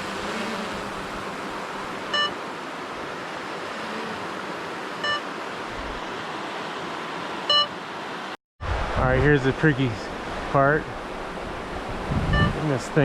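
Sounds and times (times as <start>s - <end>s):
river water rushing: 0.0s - 8.4s
remote controller beeps: 2.1s - 2.4s, 5.0s - 5.2s, 7.5s - 7.7s.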